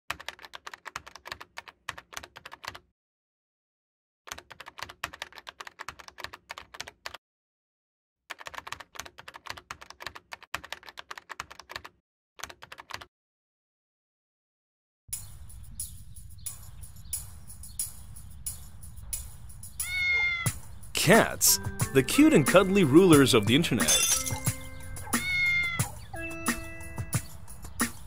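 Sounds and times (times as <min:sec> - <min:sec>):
computer keyboard typing: 0:00.1 - 0:02.8, 0:04.3 - 0:07.2, 0:08.3 - 0:13.1.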